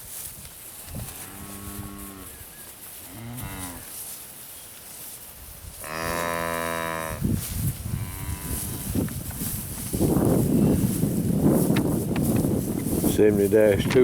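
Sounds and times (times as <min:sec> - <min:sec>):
calves mooing: 0:01.0 - 0:02.4, 0:03.1 - 0:03.9, 0:05.8 - 0:07.2, 0:07.9 - 0:09.0.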